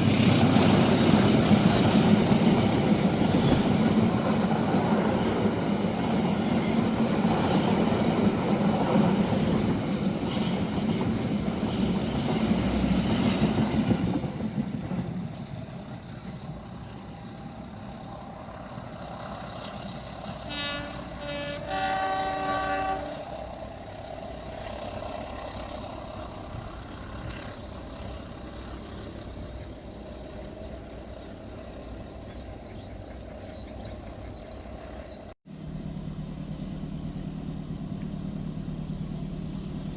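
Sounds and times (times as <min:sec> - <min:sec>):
train wheels clacking on rails: 0:00.0 - 0:35.3
locomotive horn blasts: 0:20.2 - 0:23.8.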